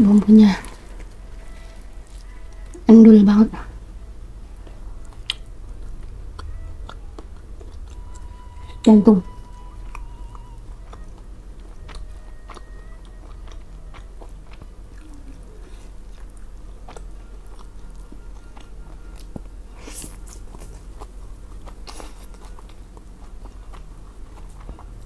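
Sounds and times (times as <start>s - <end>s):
person chewing food: 0.1s - 2.9s, 4.3s - 25.0s
wet mouth clicks and smacks: 5.1s - 5.5s.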